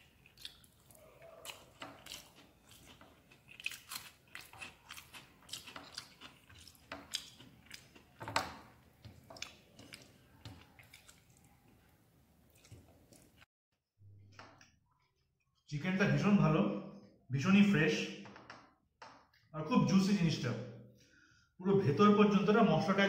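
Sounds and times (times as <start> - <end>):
person chewing: 0.0 - 13.5
fingers mixing rice on plate: 8.9 - 11.8.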